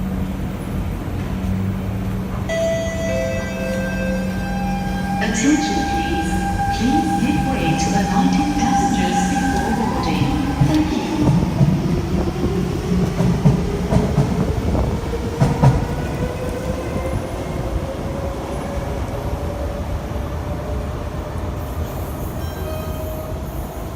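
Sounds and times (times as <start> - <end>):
rail rumble: 0.0 - 22.5
train traction motors whining: 2.6 - 11.4.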